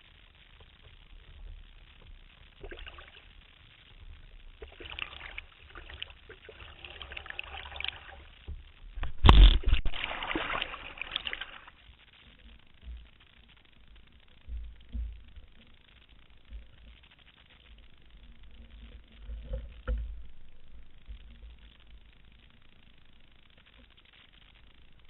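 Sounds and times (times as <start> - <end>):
water sloshing around canoe: 9.0 - 11.8
loud sudden splash: 9.1 - 11.6.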